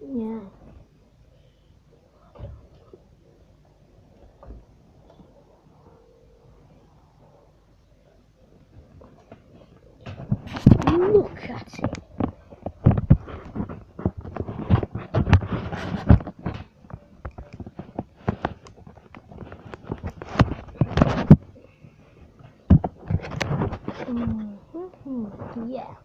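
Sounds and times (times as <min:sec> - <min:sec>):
things being moved and bumped: 0:02.2 - 0:03.4, 0:04.0 - 0:06.1, 0:08.6 - 0:24.6.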